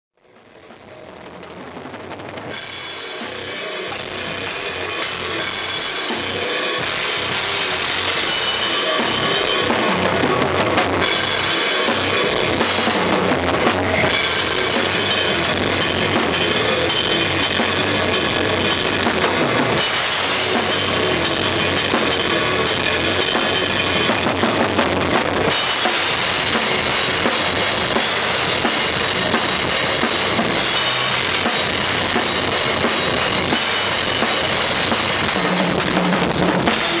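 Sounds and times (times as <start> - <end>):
bass drum: 1.8 - 37.0.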